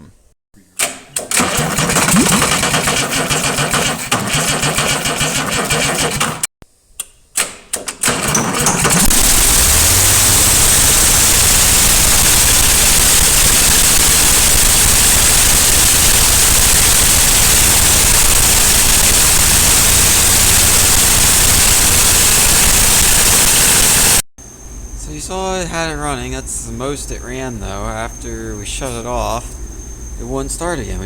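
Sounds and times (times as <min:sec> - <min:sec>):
diesel engine running: 0:01.3 - 0:06.4, 0:08.1 - 0:24.2
loud heavy hiss: 0:09.1 - 0:24.2.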